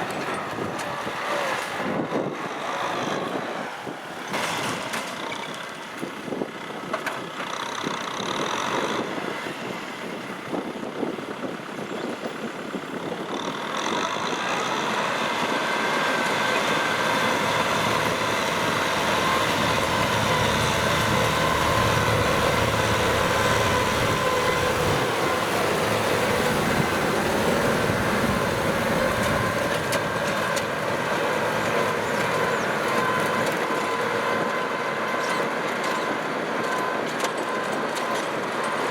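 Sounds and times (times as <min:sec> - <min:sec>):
tractor diesel engine under load: 0:00.0 - 0:38.9
steady whine: 0:15.4 - 0:35.1.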